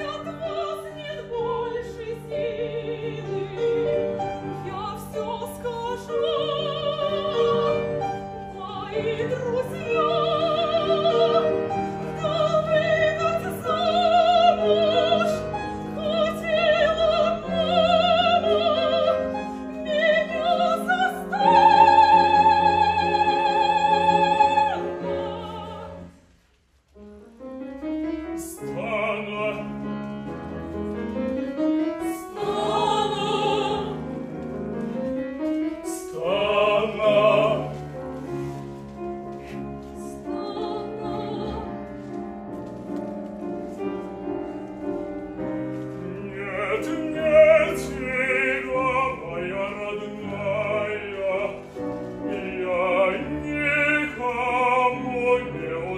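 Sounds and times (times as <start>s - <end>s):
soprano singing: 0.0s - 26.3s, 27.0s - 55.9s
piano accompaniment: 0.0s - 55.9s
several voices singing: 32.3s - 34.0s.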